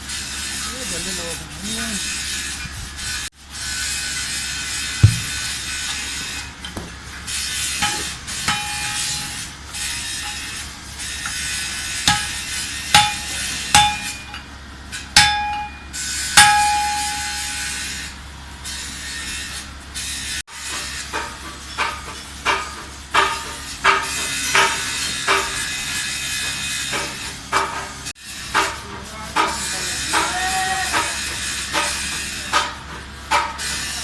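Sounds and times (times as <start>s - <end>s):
hammer blows on metal: 5.0s - 7.0s, 7.7s - 10.6s, 11.2s - 14.5s, 15.2s - 18.0s.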